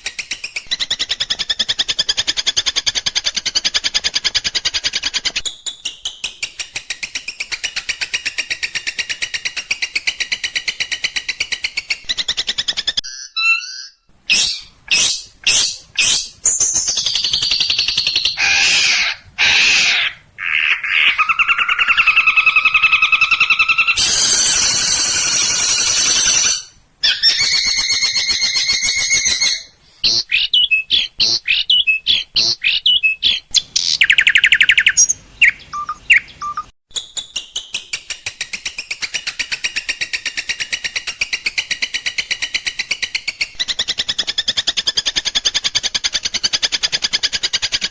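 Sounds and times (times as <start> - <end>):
shrike song: 23.9 - 26.8.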